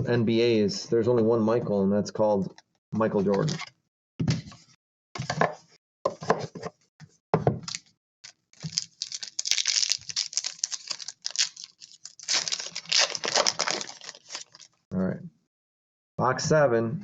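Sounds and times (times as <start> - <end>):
plastic wrapping crinkling and tearing: 7.6 - 14.8.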